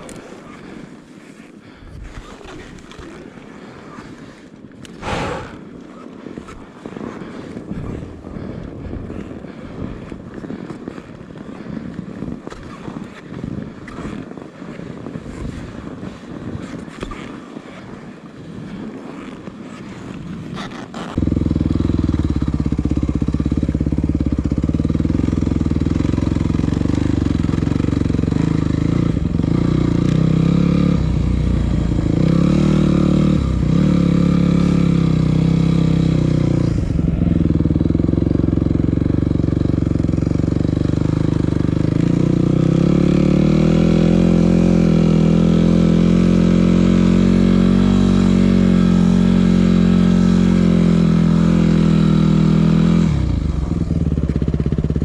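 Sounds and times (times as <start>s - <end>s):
motorcycle engine running: 5.0s - 5.6s, 21.0s - 55.0s.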